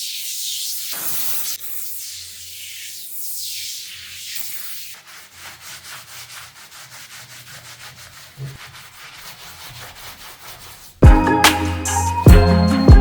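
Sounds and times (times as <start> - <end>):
hiss: 0.0 - 5.5
hand sanding strokes: 0.0 - 12.2.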